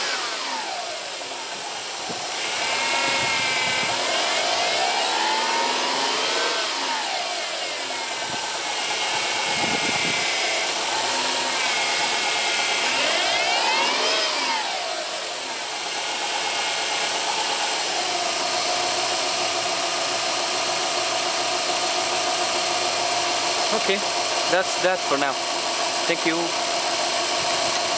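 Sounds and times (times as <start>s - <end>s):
car engine idling: 0.0s - 27.9s
power steering pump whine: 0.0s - 27.9s.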